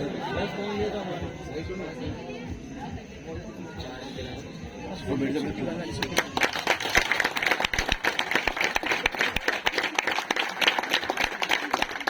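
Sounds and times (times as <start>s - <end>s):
people applauding: 5.9s - 12.0s.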